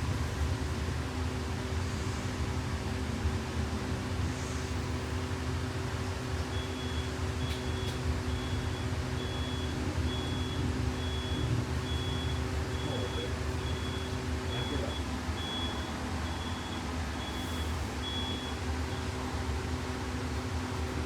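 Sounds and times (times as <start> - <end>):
bus interior hum and rumble: 0.0 - 21.0
high warning beep: 7.7 - 18.6.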